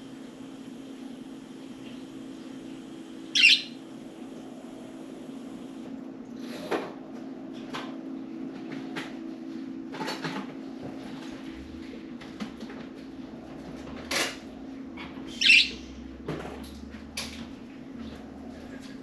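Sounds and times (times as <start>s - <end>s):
steady low hum: 0.0s - 19.0s
budgerigar chirps: 3.4s - 3.8s, 15.4s - 15.8s.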